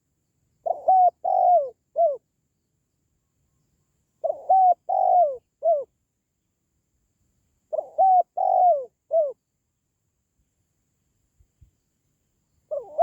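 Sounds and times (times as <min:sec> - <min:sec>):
dove cooing: 0:00.6 - 0:02.2, 0:04.2 - 0:05.9, 0:07.7 - 0:09.4, 0:12.7 - 0:13.0.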